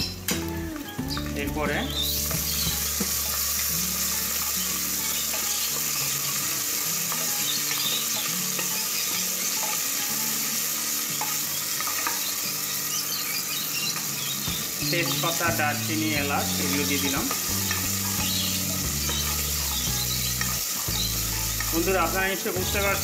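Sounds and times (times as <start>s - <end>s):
onions sizzling in hot oil: 0.0s - 23.0s.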